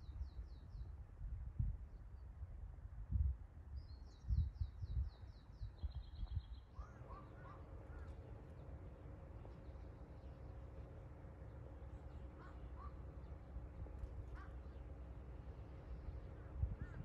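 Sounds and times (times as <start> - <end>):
wind rumbling on microphone: 0.0 - 6.6, 16.0 - 17.0
songbird singing: 3.8 - 17.0
steady low hum: 6.9 - 17.0.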